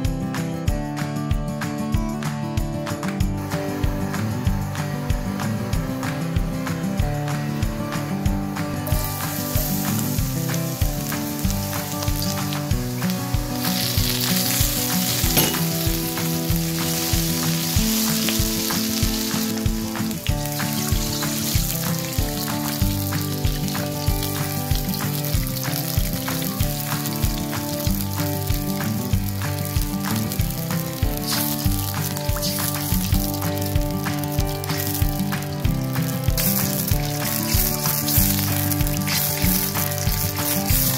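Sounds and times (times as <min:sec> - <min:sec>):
background music with beat: 0:00.0 - 0:40.9
food sizzling in hot oil: 0:03.4 - 0:40.9.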